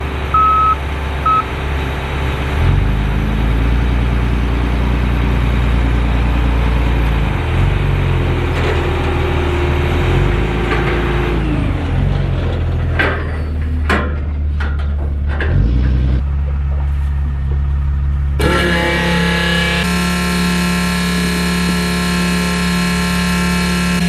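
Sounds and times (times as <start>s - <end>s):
heavy diesel engine running: 0.0s - 24.0s
short electronic beep: 0.4s - 1.5s.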